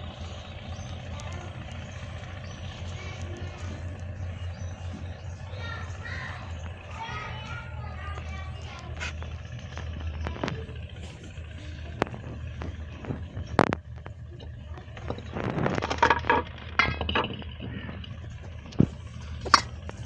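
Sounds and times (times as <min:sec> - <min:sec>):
steady low hum: 0:00.0 - 0:20.0
sharp clicks and knocks: 0:08.2 - 0:20.0.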